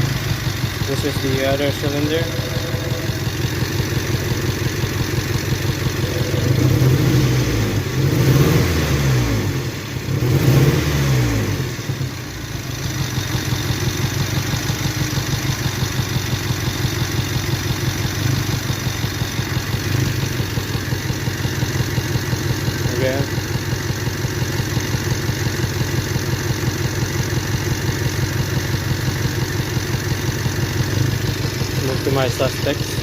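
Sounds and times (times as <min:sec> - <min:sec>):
engine misfiring at idle: 0:00.0 - 0:33.0
engine revving: 0:04.7 - 0:12.3, 0:30.7 - 0:33.0.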